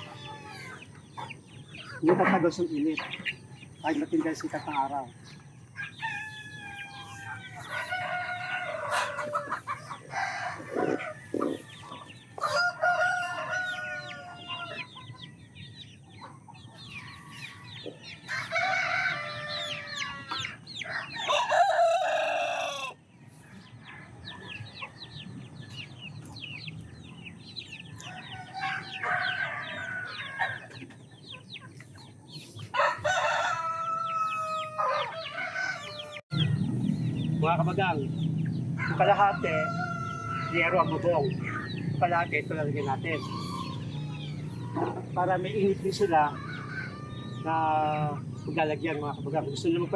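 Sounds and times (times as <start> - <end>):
chickens clucking: 0.0 - 49.9
rooster crowing: 5.9 - 14.9, 18.3 - 23.0, 28.0 - 30.7, 32.7 - 36.5, 38.8 - 41.8, 46.1 - 47.5.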